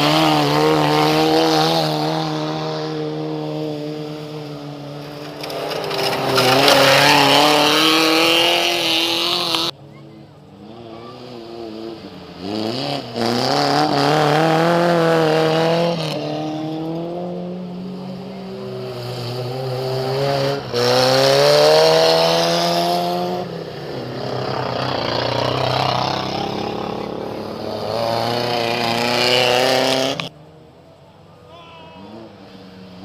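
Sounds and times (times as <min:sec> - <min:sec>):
racing car engines revving: 0:00.0 - 0:33.0.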